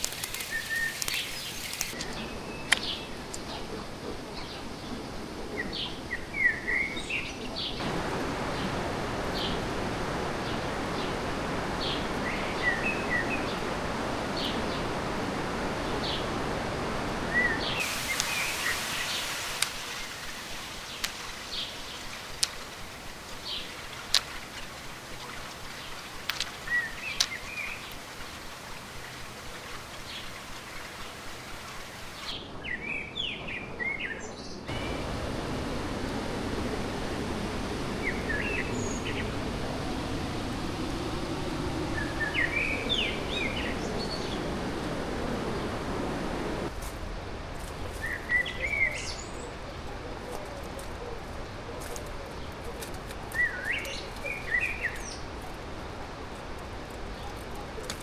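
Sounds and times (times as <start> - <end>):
stream rushing: 0.0 - 2.1, 7.8 - 32.4, 34.7 - 46.8
sharp clicks: 0.0 - 2.9, 17.8 - 32.3
small birds chirping: 0.0 - 32.4, 34.7 - 46.7, 47.8 - 58.0.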